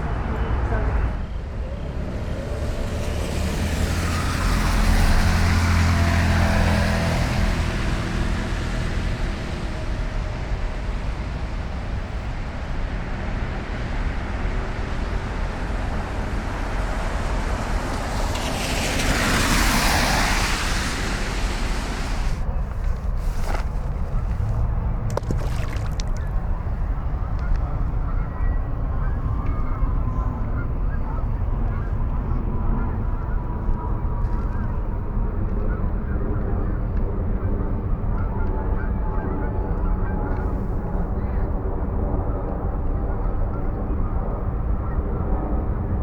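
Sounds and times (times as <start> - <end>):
vehicle rushing past: 0.0 - 11.4, 13.6 - 22.5
traffic rumble: 0.0 - 46.0
vehicle engine hum passing: 0.0 - 46.0.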